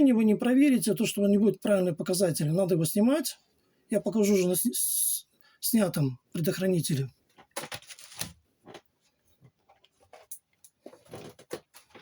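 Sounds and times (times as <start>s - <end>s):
small objects rustling: 7.3s - 12.0s.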